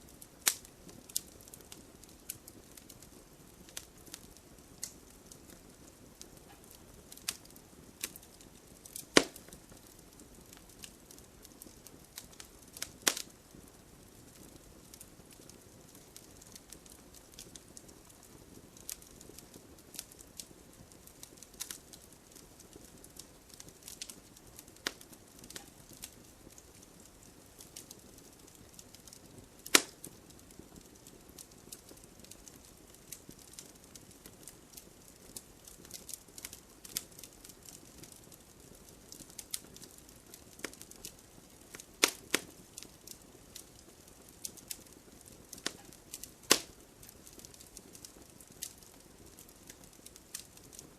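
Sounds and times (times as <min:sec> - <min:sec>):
fire crackling: 0:00.0 - 0:50.9
log pops: 0:09.0 - 0:09.5, 0:29.6 - 0:30.0, 0:42.0 - 0:42.5, 0:46.5 - 0:46.7.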